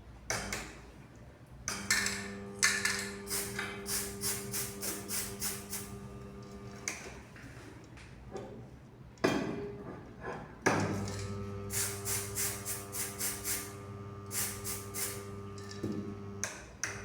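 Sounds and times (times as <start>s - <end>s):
short hissing sprays: 3.3s - 6.1s, 11.7s - 15.4s
electromagnetic yoke humming: 11.0s - 11.8s, 13.8s - 14.3s, 15.2s - 16.4s.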